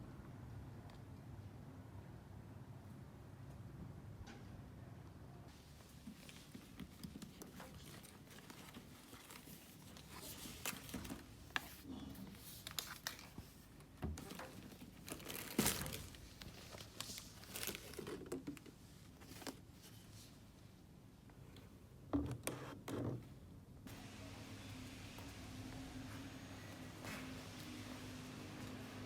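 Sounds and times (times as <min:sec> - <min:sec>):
crinkling and rustling: 0:05.8 - 0:20.6.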